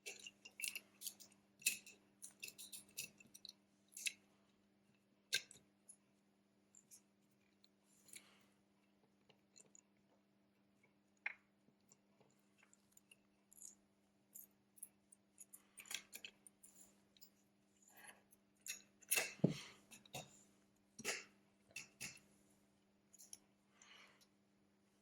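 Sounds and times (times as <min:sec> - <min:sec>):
small tools clicking and scraping: 0:00.0 - 0:04.2.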